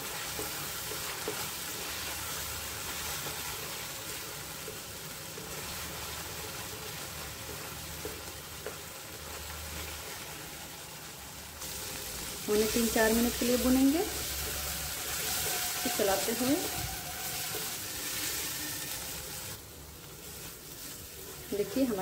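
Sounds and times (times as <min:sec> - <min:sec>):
spatula stirring in pan: 0:00.0 - 0:10.4, 0:11.6 - 0:22.0
paste sizzling in oil: 0:00.0 - 0:22.0.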